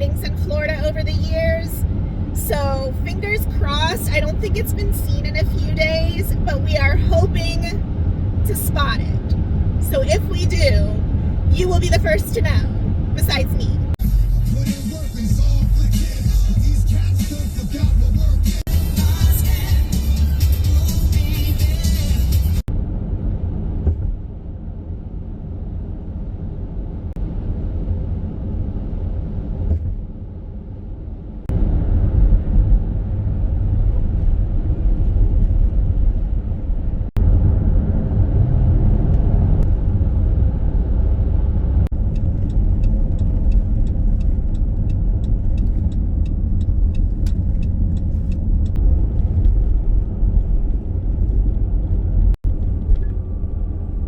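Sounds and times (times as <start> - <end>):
minivan road and engine rumble: 0.0 - 54.0
fast regular light ticks: 42.2 - 48.8.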